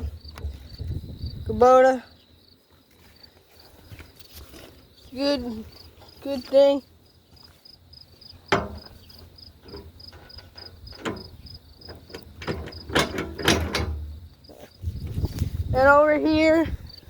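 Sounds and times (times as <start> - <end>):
cricket chirping: 0.0 - 17.0
knocks and clatters: 8.5 - 14.2.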